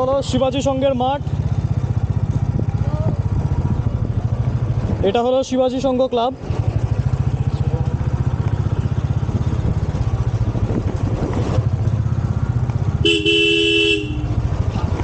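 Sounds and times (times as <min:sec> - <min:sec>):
motorcycle engine running: 0:00.0 - 0:15.0
two-note vehicle horn: 0:13.0 - 0:14.4.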